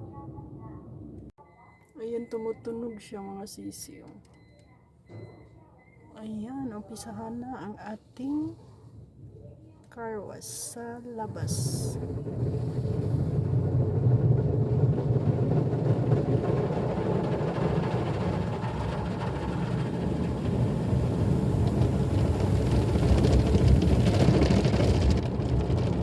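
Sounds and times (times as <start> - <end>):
car wash machine rumble: 11.2 - 26.0.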